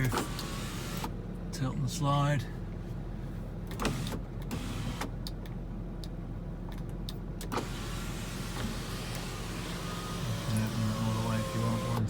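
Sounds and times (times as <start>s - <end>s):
sunroof motor humming: 7.5s - 12.0s.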